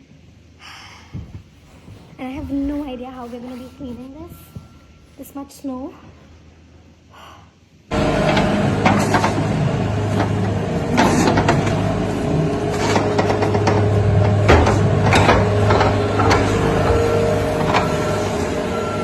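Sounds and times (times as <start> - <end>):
machine motor running: 7.9 - 19.0.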